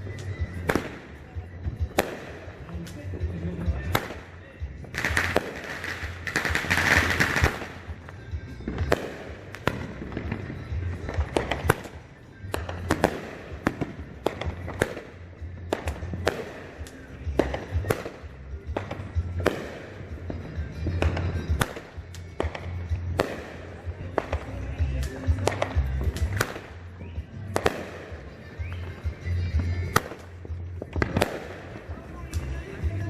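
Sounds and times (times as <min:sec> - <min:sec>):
fireworks bangs: 0:00.0 - 0:33.0
music with pulsing bass: 0:00.0 - 0:33.0.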